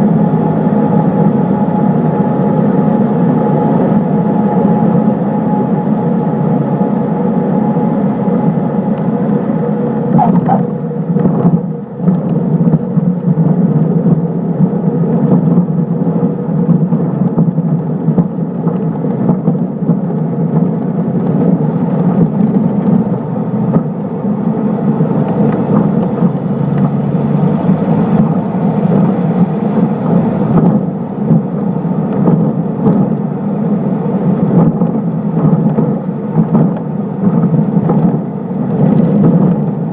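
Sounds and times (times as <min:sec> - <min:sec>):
propeller aircraft engine droning: 0:00.0 - 0:39.9
airflow noise: 0:03.5 - 0:11.1, 0:21.6 - 0:34.6.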